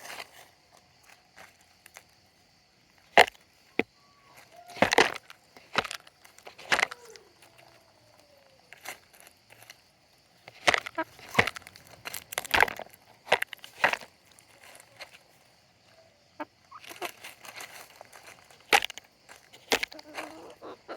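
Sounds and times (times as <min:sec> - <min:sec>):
chickens pecking at food: 0:03.0 - 0:20.9
soft chicken calls: 0:03.7 - 0:05.1, 0:06.6 - 0:09.1, 0:14.3 - 0:18.7, 0:19.6 - 0:20.9.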